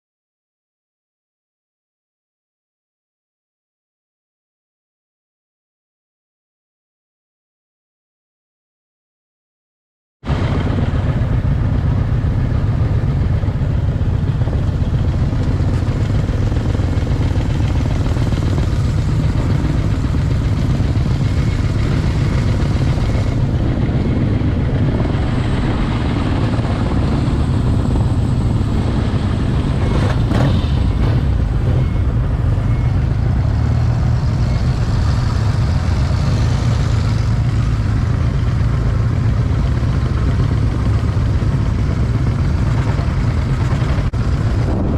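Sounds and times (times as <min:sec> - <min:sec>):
motorcycle engines rumbling: 0:10.3 - 0:44.9.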